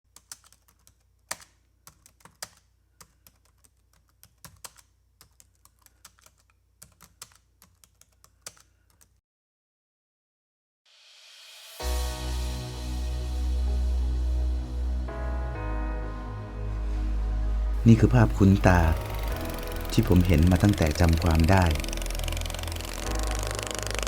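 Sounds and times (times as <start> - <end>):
computer keyboard typing: 0.1 - 9.1, 17.8 - 24.0.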